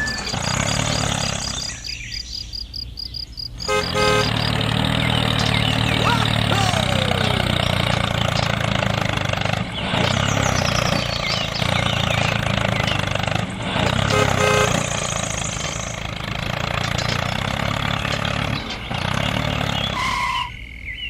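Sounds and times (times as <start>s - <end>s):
short tonal beep: 0.0s - 0.5s
small tractor engine running: 0.0s - 20.9s.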